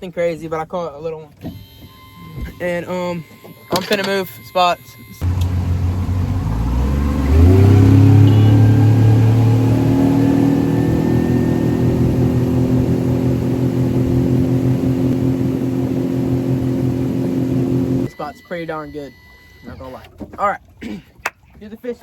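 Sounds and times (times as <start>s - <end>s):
boat motor running: 5.2s - 20.4s.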